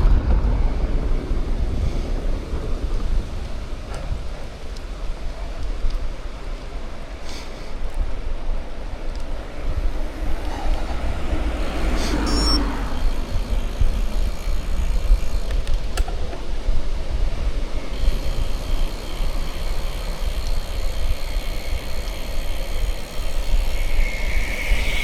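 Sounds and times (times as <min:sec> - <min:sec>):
bicycle tyre noise: 0:00.0 - 0:25.0
wind rumble on microphone: 0:00.0 - 0:25.0
motor vehicle passing: 0:09.3 - 0:16.0.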